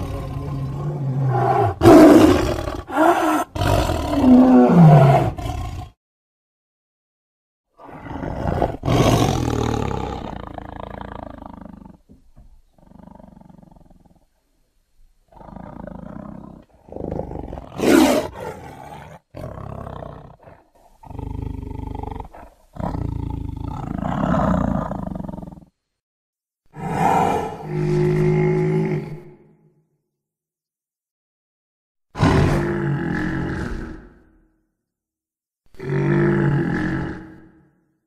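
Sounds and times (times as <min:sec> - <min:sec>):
creature roaring: 0:00.0 - 0:05.9, 0:17.0 - 0:23.1, 0:26.8 - 0:29.4, 0:32.2 - 0:34.3, 0:35.8 - 0:37.6.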